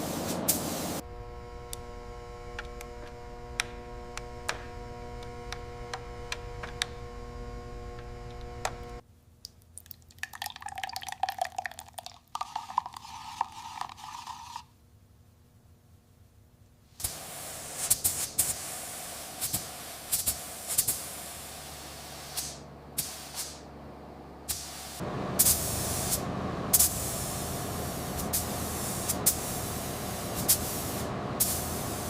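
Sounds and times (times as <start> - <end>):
mechanical hum: 0.0 - 9.4, 12.8 - 32.0
scratchy rubbing noise: 12.9 - 14.7.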